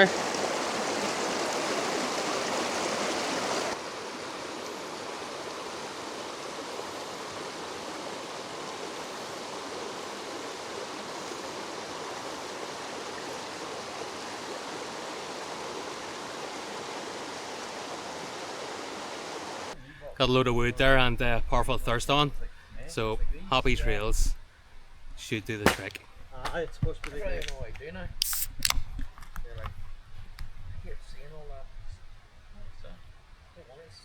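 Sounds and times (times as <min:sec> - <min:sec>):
river rushing: 0:00.0 - 0:19.8.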